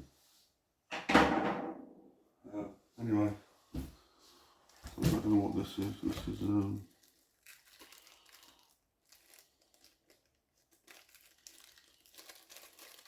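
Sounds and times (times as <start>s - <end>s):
plastic packaging crinkling: 4.7s - 13.0s.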